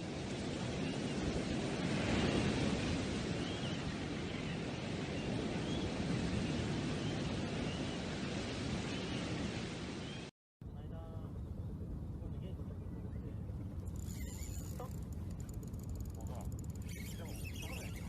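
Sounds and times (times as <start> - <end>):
faint high chirps: 16.7 - 18.0.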